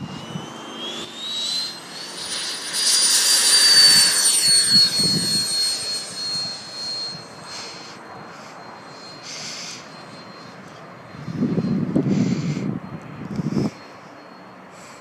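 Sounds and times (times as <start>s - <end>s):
rush of air: 0.0s - 8.5s
electric fan motor whining: 0.0s - 13.7s
wind buffeting microphone: 2.2s - 7.5s, 11.1s - 13.8s.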